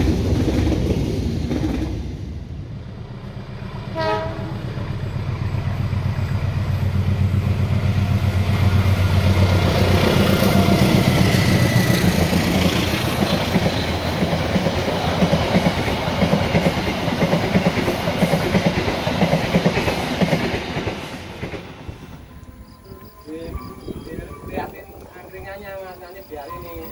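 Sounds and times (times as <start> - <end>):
train wheels clickety-clack on rails: 0.0 - 2.3, 5.5 - 22.4
locomotive engine drone: 2.6 - 15.0.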